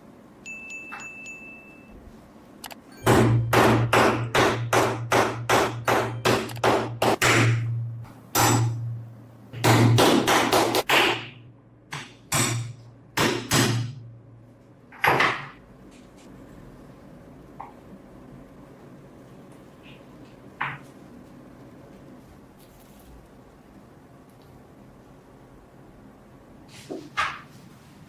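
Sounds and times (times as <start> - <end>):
hammer striking metal: 3.0 - 9.0, 9.6 - 14.1.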